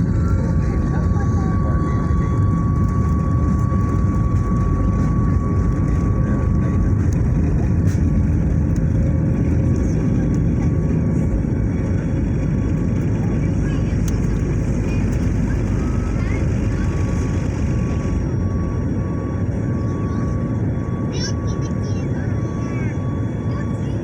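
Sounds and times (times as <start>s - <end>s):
faint high whine: 0.0s - 8.1s
jet engines rumbling: 0.0s - 24.0s.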